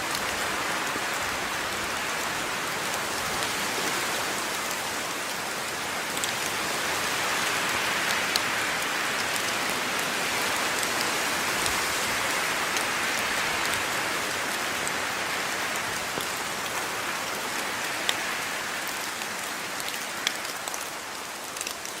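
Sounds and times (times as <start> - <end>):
steady rain hiss: 0.0 - 22.0
raindrops ticking: 18.8 - 22.0.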